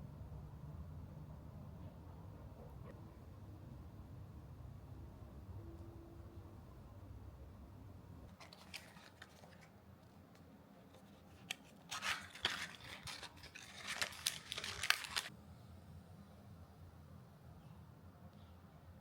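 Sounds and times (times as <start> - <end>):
crackles and snips: 8.3 - 9.8, 10.4 - 15.3.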